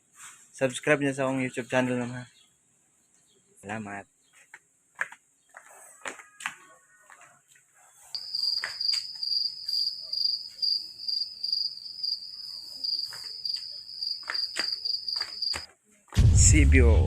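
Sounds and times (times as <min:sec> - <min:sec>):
insect trilling: 0:08.2 - 0:15.6.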